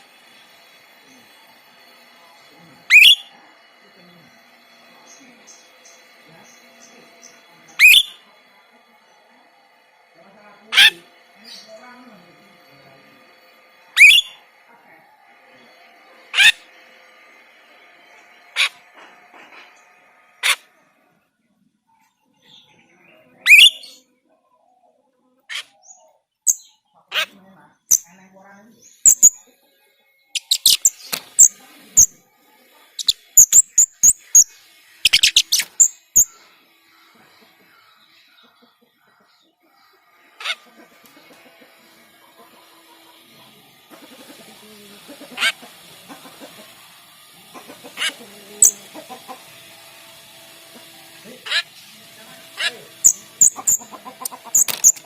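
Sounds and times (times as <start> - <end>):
starling low chatter: 0.0 - 26.2
starling calling: 2.7 - 8.3, 10.6 - 11.9, 13.8 - 14.5, 16.3 - 16.8, 18.5 - 19.0, 20.4 - 20.7, 23.4 - 24.0, 28.8 - 29.5, 30.3 - 38.0, 43.9 - 55.0.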